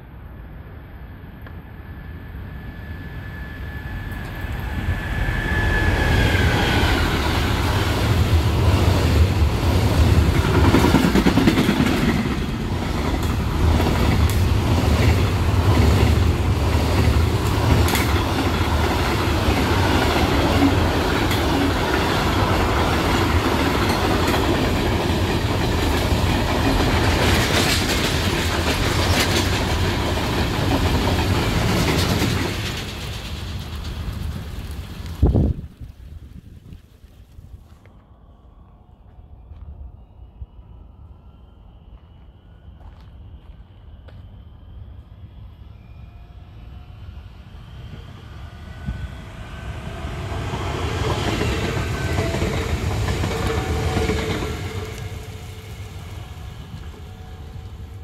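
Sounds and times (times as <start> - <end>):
freight train rumbling past: 0.0 - 36.6, 39.3 - 58.0
high whine dropping in pitch: 1.2 - 9.5.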